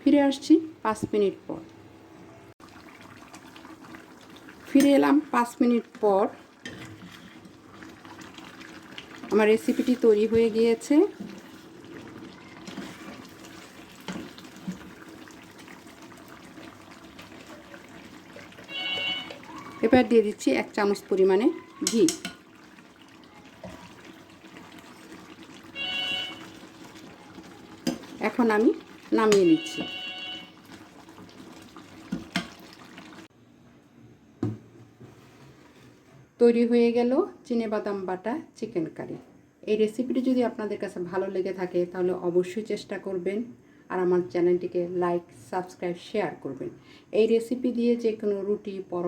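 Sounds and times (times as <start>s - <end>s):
curry bubbling on stove: 2.6s - 33.3s.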